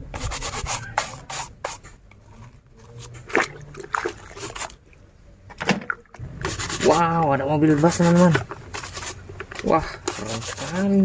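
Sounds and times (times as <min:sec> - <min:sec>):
brush scrubbing plastic: 0:00.2 - 0:01.8, 0:04.0 - 0:04.8, 0:06.4 - 0:11.0.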